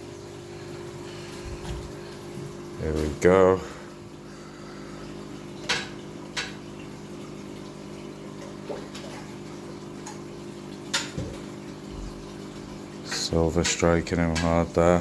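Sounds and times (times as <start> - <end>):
pump humming: 0.0 - 15.0
running water: 0.0 - 15.0.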